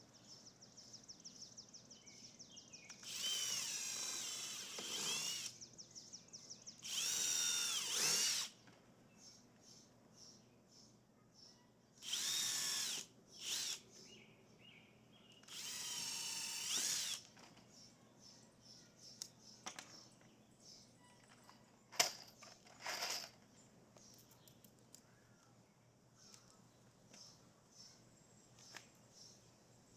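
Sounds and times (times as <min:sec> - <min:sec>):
cordless drill whining: 0:03.0 - 0:05.6, 0:06.8 - 0:08.6, 0:12.0 - 0:13.8, 0:15.4 - 0:17.3.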